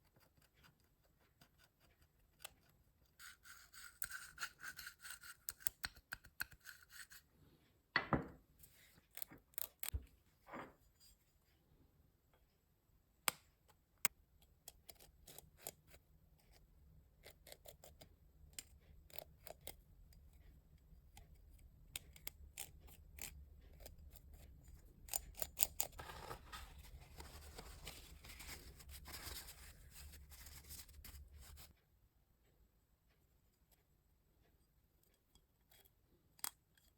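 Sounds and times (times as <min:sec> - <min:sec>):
rubbing or scraping: 0:25.9 - 0:31.7.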